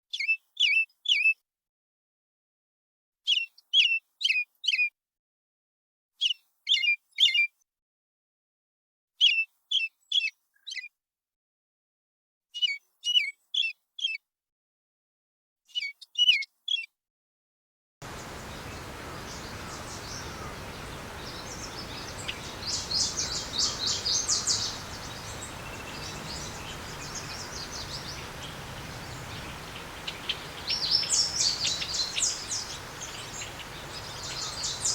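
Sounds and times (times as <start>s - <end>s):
background hiss: 18.0s - 34.9s
bird chirping: 18.1s - 34.9s
rapid bird twittering: 18.1s - 34.9s.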